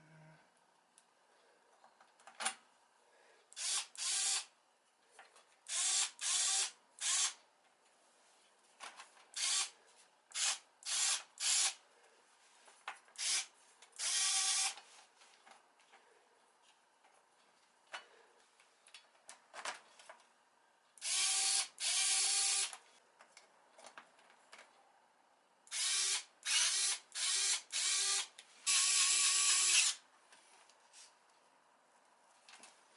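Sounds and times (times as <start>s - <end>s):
small electric motor bursts: 3.6s - 4.5s, 5.7s - 7.4s, 9.4s - 9.7s, 10.3s - 11.8s, 13.2s - 14.8s, 21.0s - 22.7s, 25.7s - 30.0s.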